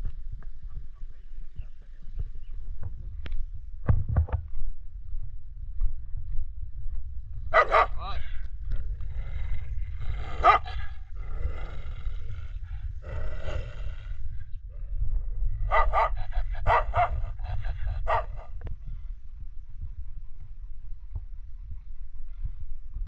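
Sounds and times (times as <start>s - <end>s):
low rumble: 0.0s - 23.0s
dog barking: 7.5s - 8.0s, 10.4s - 10.8s, 15.7s - 17.4s, 18.0s - 18.5s.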